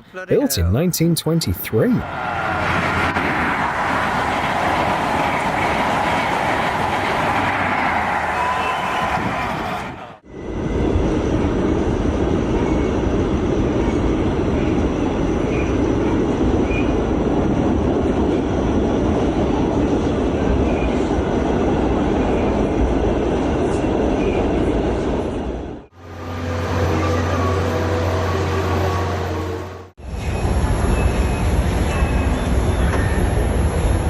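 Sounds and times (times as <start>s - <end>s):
train wheels rumbling on rails: 2.2s - 25.1s.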